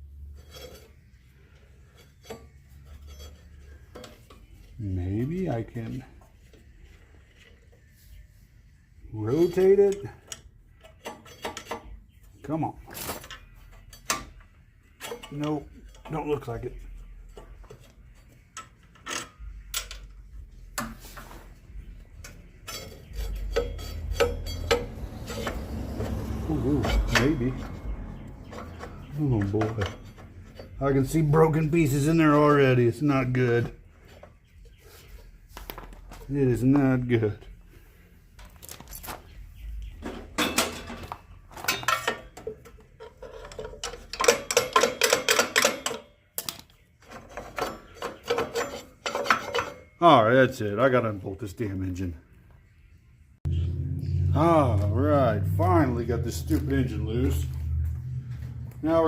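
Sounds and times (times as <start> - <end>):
metal tools clinking: 0.2 - 6.0, 9.3 - 12.1, 12.9 - 21.0, 22.1 - 34.8, 40.0 - 50.1
low hum: 21.7 - 32.0, 53.4 - 59.0
metal tool clicks and clinks: 22.7 - 26.0.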